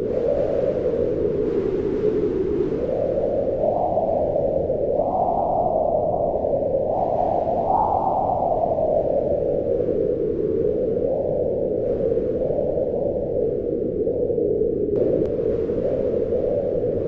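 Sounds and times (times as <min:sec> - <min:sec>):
howling wind: 0:00.0 - 0:17.0.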